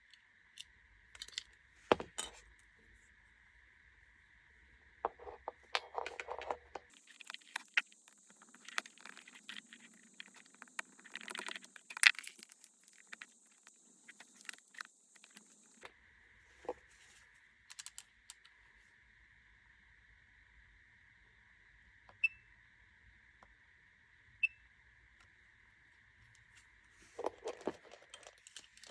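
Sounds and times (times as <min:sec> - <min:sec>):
small hard parts clicking and rattling: 0:00.0 - 0:02.4, 0:05.1 - 0:15.9, 0:17.7 - 0:18.5, 0:27.2 - 0:28.9
faint high-pitched whine: 0:00.0 - 0:28.9.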